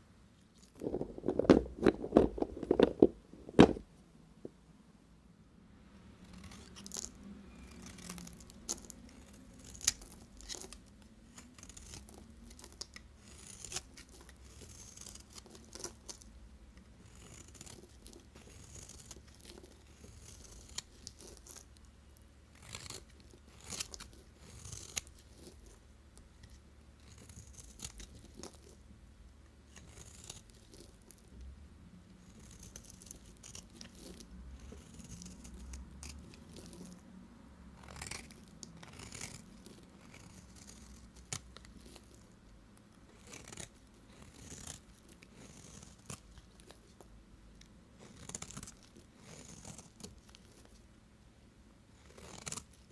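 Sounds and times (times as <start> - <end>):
knife shaving soap: 6.3 - 28.8, 29.7 - 31.3, 32.2 - 37.0, 37.8 - 50.9, 52.0 - 52.9
knife cracking through soap: 7.8 - 16.3, 17.1 - 21.6, 22.6 - 25.5, 37.8 - 42.1, 43.2 - 46.2, 52.1 - 52.7.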